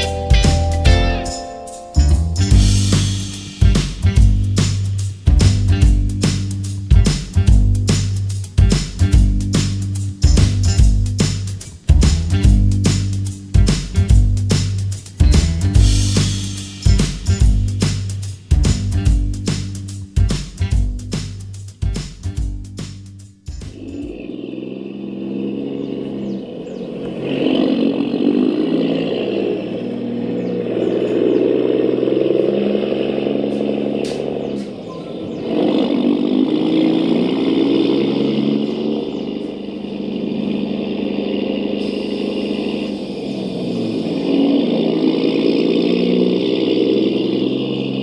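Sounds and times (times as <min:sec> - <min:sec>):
radio-controlled truck motor drone: 0:24.0 - 0:48.0.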